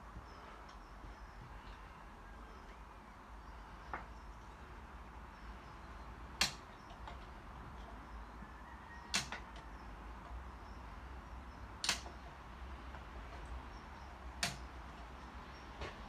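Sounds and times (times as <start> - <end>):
sharp clicks: 6.4 - 7.2, 9.1 - 9.6, 11.8 - 12.4, 14.3 - 15.1.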